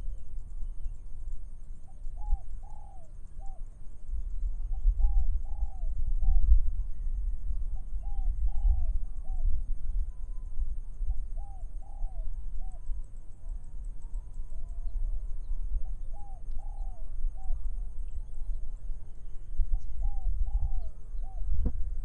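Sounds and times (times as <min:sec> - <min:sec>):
low rumble of wind: 0:00.0 - 0:22.0
dove cooing: 0:02.2 - 0:03.6, 0:05.0 - 0:06.4, 0:07.8 - 0:09.5, 0:11.4 - 0:12.8, 0:16.0 - 0:17.7, 0:19.7 - 0:21.7.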